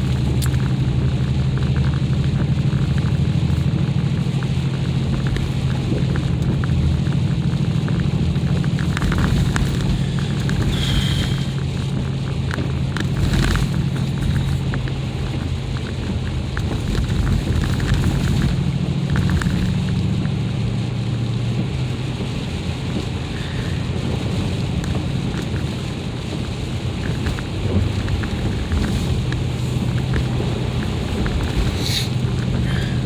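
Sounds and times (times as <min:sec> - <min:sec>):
engine and road rumble: 0:00.0 - 0:33.0
tyres crunching over ice: 0:04.4 - 0:20.0, 0:26.4 - 0:33.0.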